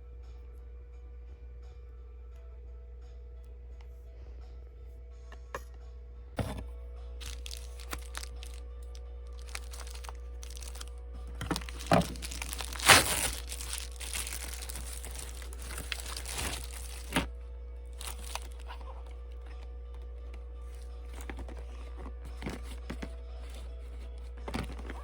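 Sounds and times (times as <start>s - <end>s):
rustling: 7.2s - 8.6s, 9.4s - 17.3s
loud packaging crackle: 7.2s - 17.3s, 18.0s - 18.8s
packaging crinkling and tearing: 7.2s - 17.3s, 18.0s - 18.8s.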